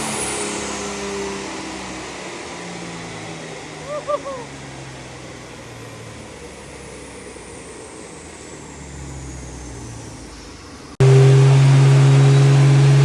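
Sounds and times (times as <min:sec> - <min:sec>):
diesel engine running at high rpm: 0:00.0 - 0:13.0
high whine falling in pitch: 0:11.0 - 0:13.0.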